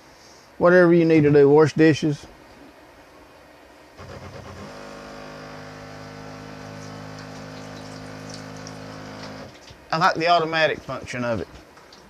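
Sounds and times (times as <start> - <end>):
electric water pump humming: 3.9 - 12.0
water flowing through plumbing: 4.1 - 9.9.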